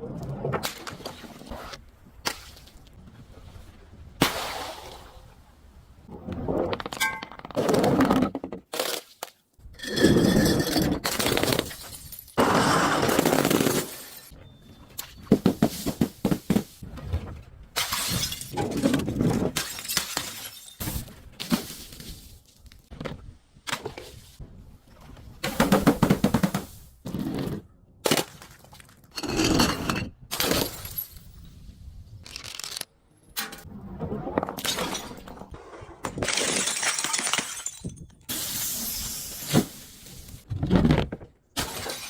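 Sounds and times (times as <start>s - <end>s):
glass shattering: 19.6s - 21.0s, 36.2s - 39.3s.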